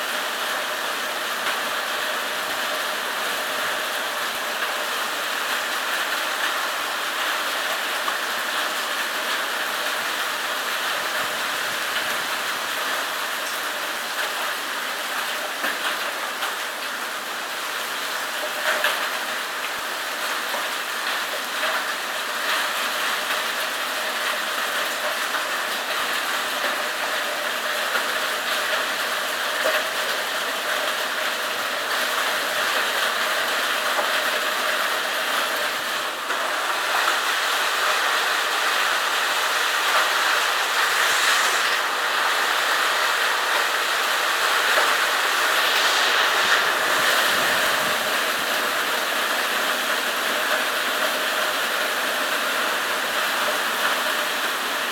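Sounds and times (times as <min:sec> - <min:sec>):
heavy rain and hail: 0:00.0 - 0:54.9.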